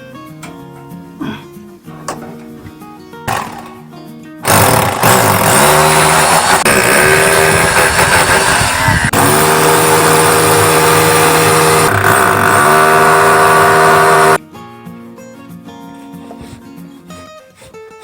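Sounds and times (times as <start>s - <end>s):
loud motor running: 3.3s - 14.4s.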